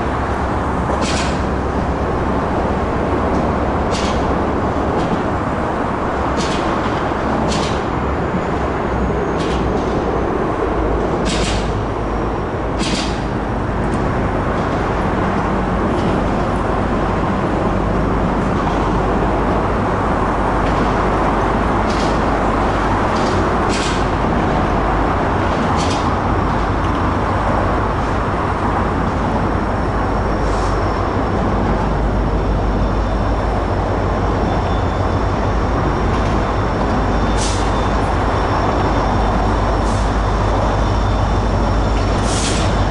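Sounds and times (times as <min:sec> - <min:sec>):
train wheels rumbling on rails: 0:00.0 - 0:42.9.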